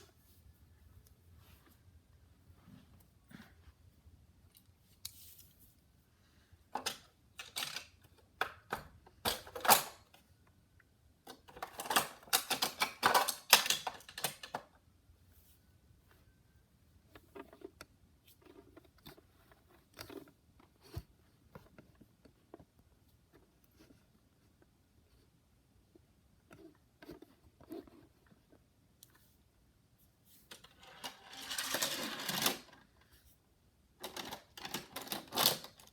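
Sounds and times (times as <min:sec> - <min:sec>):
toy cars clicking and clattering: 0:06.8 - 0:10.1, 0:11.3 - 0:14.7, 0:30.5 - 0:32.8, 0:34.0 - 0:35.9.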